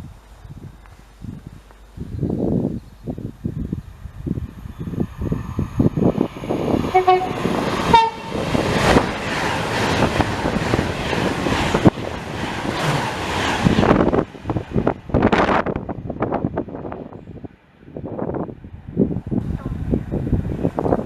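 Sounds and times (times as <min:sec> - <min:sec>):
train passing rail noise: 0:00.0 - 0:21.0
train horn: 0:06.9 - 0:08.5
sharp rail clicks: 0:07.5 - 0:15.8.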